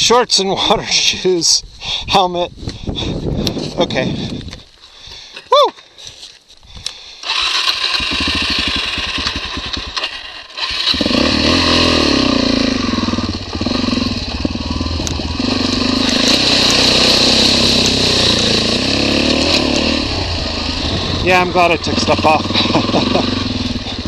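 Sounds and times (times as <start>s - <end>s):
motorcycle engine revving: 7.2s - 24.0s.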